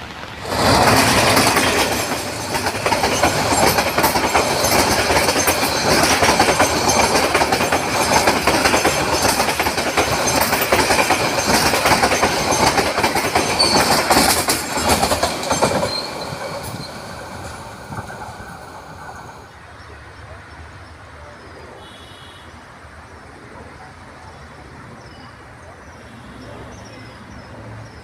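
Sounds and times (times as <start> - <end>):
train wheels clattering: 0.0 - 19.5
train wheel squeal: 0.4 - 19.4.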